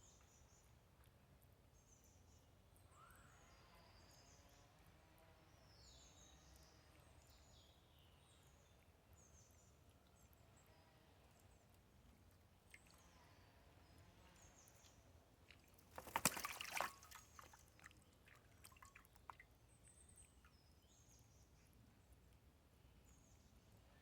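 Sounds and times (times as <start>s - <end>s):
water dripping: 11.2s - 13.2s, 13.8s - 20.6s
bird splashing in water: 12.6s - 13.1s, 14.6s - 19.6s.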